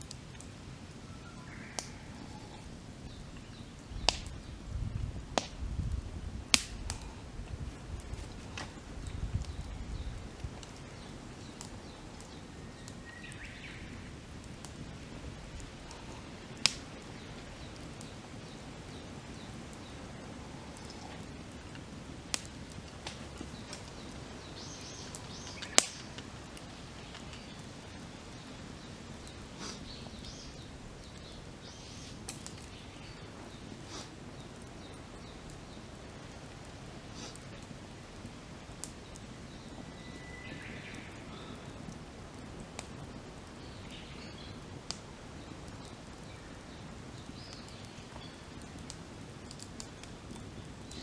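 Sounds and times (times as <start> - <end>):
campfire crackling: 0.0 - 51.0
campfire popping: 0.0 - 51.0
birds calling: 0.9 - 4.6, 8.0 - 21.7, 22.3 - 36.0.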